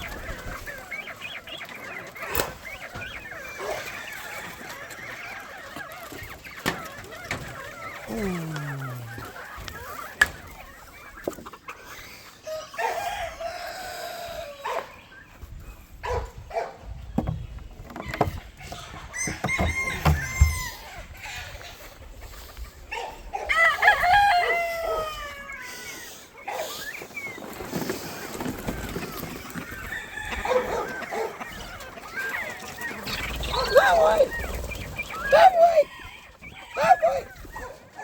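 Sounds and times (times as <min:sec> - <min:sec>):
hens clucking: 0:00.0 - 0:38.0
roosters crowing: 0:02.1 - 0:11.0, 0:11.8 - 0:15.0, 0:17.4 - 0:21.7, 0:23.0 - 0:27.0, 0:28.2 - 0:38.0.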